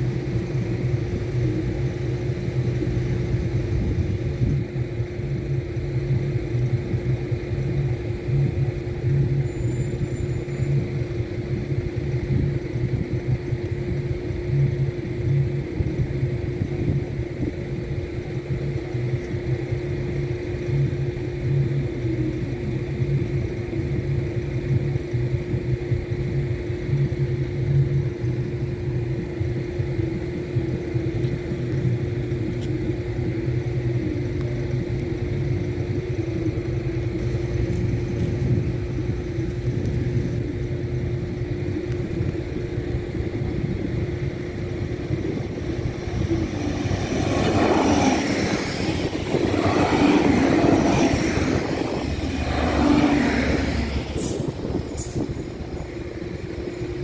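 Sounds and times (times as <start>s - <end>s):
train rumbling past: 0.0s - 57.0s
high-pitched squealing: 44.4s - 57.0s.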